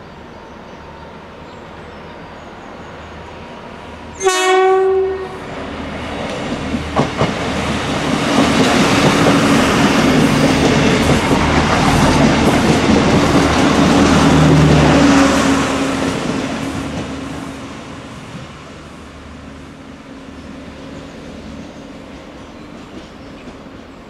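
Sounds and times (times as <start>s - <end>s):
train rumble: 0.0s - 24.0s
train horn: 4.1s - 5.6s
train wheels clicking over rail joints: 6.1s - 14.9s.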